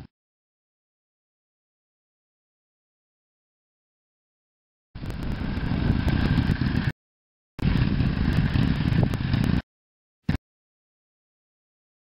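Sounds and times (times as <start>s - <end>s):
motorcycle engine running: 5.0s - 6.9s, 7.6s - 9.6s.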